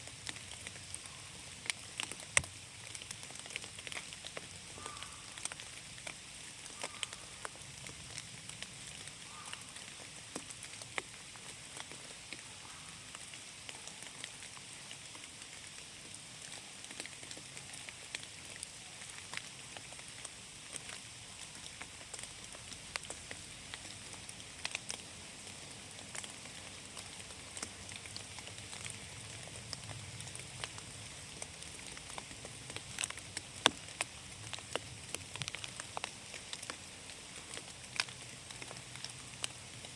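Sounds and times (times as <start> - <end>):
raindrops ticking: 0.0 - 39.9.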